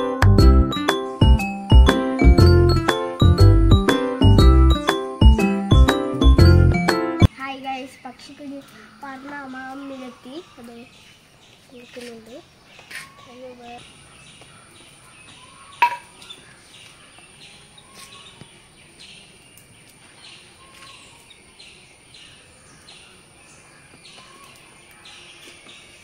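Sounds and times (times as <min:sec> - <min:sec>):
bird chirping: 0:06.6 - 0:26.0.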